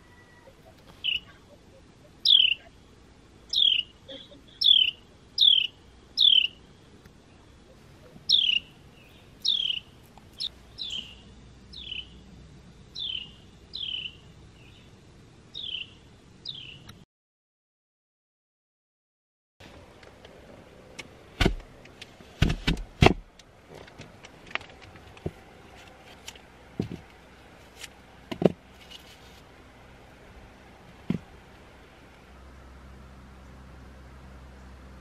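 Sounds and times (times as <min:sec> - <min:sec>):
bird chirping: 0:00.0 - 0:12.3, 0:12.9 - 0:17.0.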